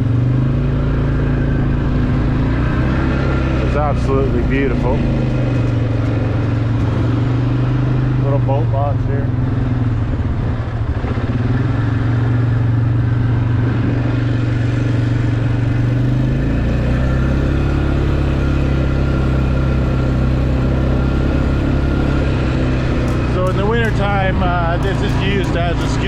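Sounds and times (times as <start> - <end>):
truck engine running: 0.0 - 26.0
tyres on gravel: 2.5 - 8.1, 20.8 - 26.0.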